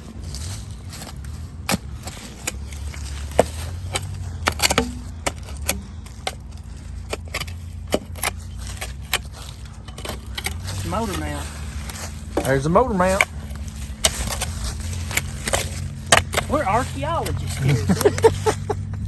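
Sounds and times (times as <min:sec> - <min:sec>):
shovel scraping dirt: 0:00.0 - 0:19.0
steady low rumble: 0:00.0 - 0:19.0.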